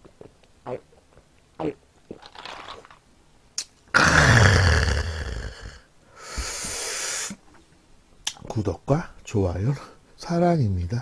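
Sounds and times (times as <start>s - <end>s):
loud drawn-out burp: 3.9s - 5.8s
short hiss: 6.2s - 7.4s.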